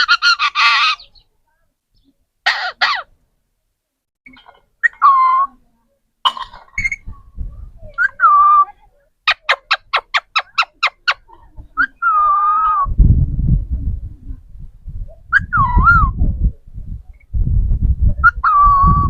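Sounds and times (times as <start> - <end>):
loud low rumbling noise: 12.9 - 19.0
parrot whistling and chirping: 15.3 - 16.1.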